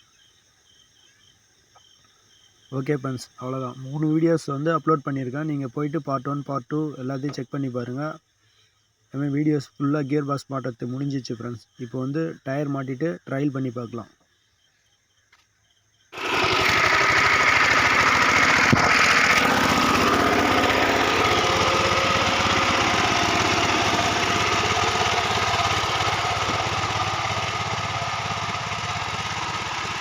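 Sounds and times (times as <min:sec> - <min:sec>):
diesel engine running: 0:16.2 - 0:30.0.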